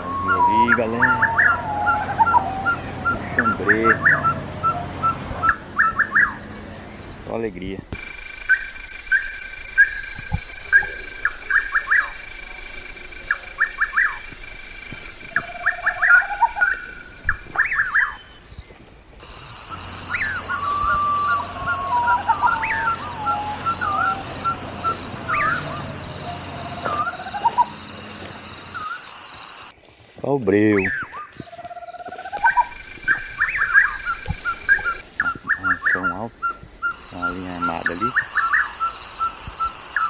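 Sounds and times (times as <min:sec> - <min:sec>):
wavering whistled calls: 0:00.0 - 0:07.3, 0:07.9 - 0:29.7, 0:30.6 - 0:40.0
high insect trill: 0:00.0 - 0:40.0
short sharp chirps: 0:08.0 - 0:18.4, 0:32.3 - 0:35.3.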